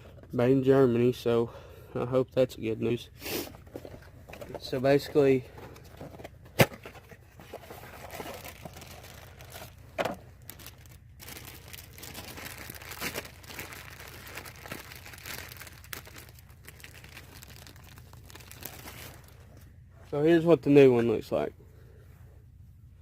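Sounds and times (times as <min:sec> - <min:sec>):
plastic and paper crinkling: 0:03.6 - 0:19.7.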